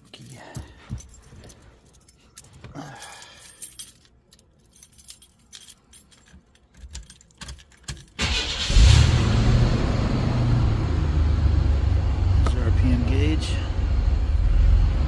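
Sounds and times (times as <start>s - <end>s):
handling clicks and knocks: 0.0s - 8.2s
keys jangling: 0.0s - 8.2s
car engine cranking and starting: 8.0s - 15.0s.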